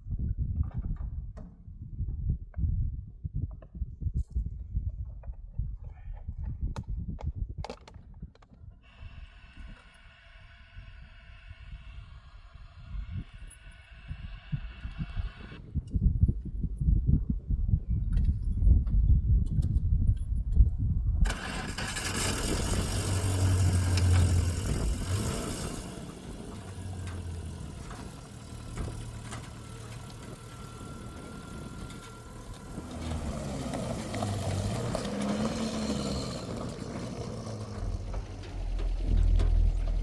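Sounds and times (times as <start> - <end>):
vehicle engine running: 21.2 - 40.0.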